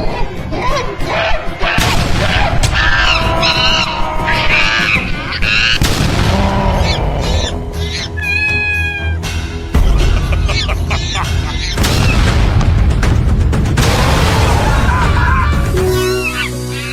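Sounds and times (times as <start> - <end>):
music with heavy low beat: 9.3 - 16.8.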